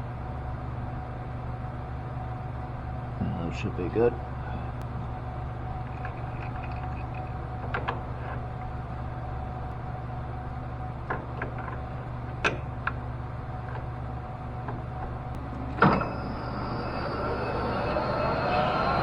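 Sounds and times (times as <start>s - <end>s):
metal lathe humming: 14.4s - 19.0s.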